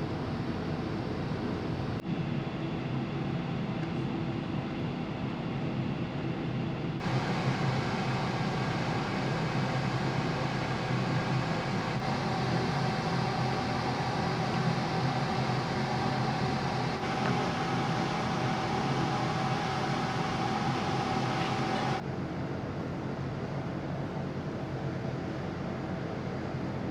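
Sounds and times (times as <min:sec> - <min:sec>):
steady whine: 0:06.5 - 0:22.1
ship engine hum: 0:07.0 - 0:22.0.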